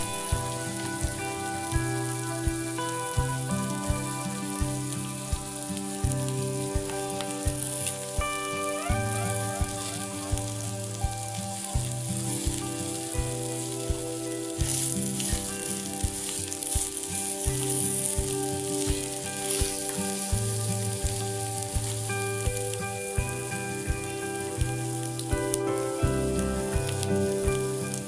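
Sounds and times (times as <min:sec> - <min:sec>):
background music with bass line: 0:00.0 - 0:28.0
meat sizzling in a frying pan: 0:00.0 - 0:28.0.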